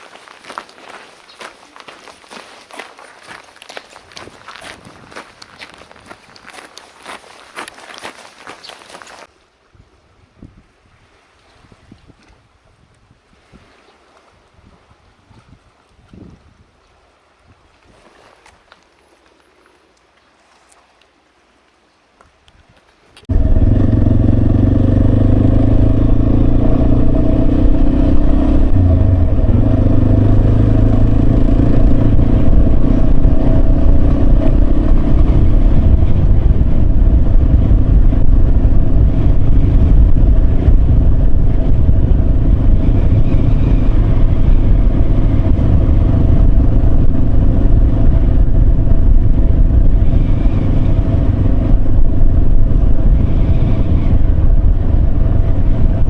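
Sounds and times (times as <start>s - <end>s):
wind and road noise: 0.0s - 56.0s
motorcycle engine running: 23.3s - 56.0s.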